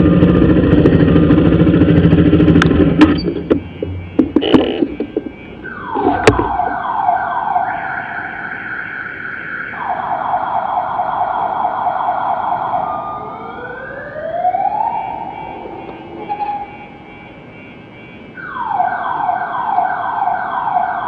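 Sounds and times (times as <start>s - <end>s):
motorcycle engine rumbling: 0.0s - 7.0s
siren wailing: 0.0s - 21.0s
motorcycle cracks: 2.4s - 5.4s.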